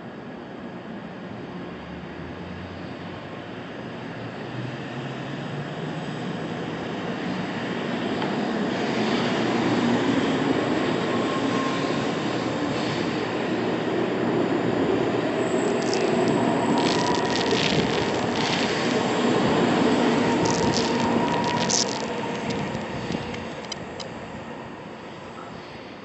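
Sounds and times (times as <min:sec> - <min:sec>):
train rushing out of platform: 0:00.1 - 0:26.0
sharp high hissing and squealing: 0:15.4 - 0:24.0.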